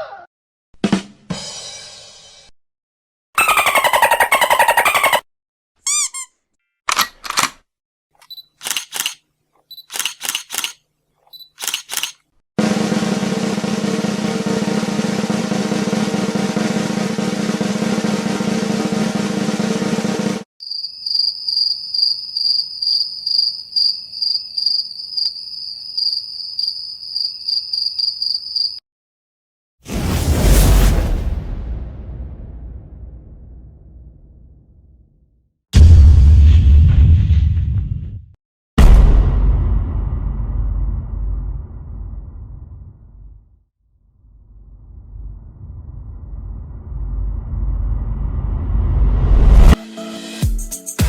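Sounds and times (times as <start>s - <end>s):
short sharp clicks: 8.2s - 12.3s
crickets chirping: 20.6s - 28.8s.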